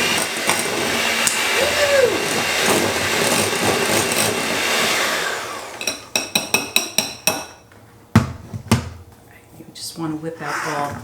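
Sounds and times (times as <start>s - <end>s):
electric mixer whirring: 0.0s - 6.0s.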